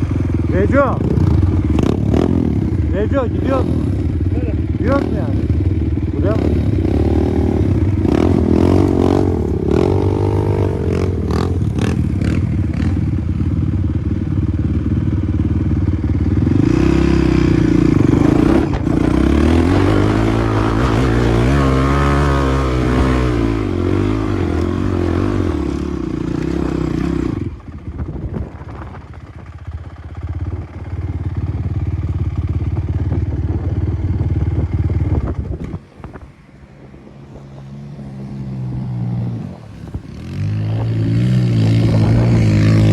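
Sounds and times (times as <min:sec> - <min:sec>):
dirt bike engine revving: 0:00.0 - 0:27.9, 0:38.1 - 0:42.9.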